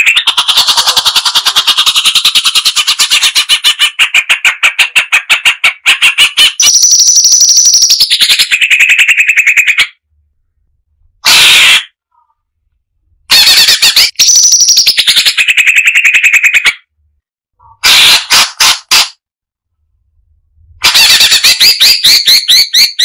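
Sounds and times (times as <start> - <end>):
bird singing rapid notes: 5.4 - 10.0, 13.5 - 16.9, 21.2 - 23.0
bird pulsed trill: 6.6 - 9.1, 14.0 - 16.4.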